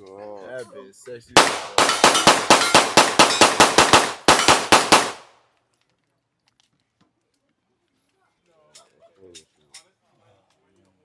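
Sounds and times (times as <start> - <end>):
rapid gunshots: 1.4 - 5.3.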